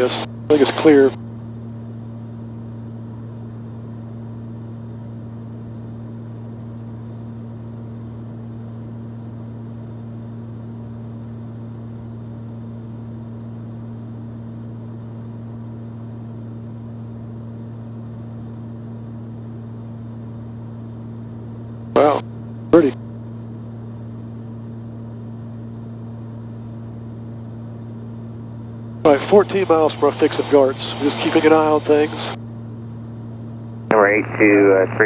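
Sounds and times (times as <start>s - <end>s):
aircraft engines droning: 0.0s - 1.2s, 22.0s - 22.2s, 29.0s - 32.4s, 33.9s - 35.0s
airflow noise: 29.1s - 32.4s.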